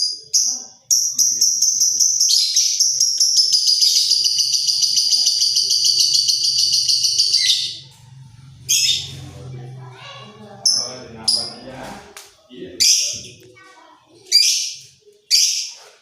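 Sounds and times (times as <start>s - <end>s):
lovebird chattering trill: 0.3s - 7.8s.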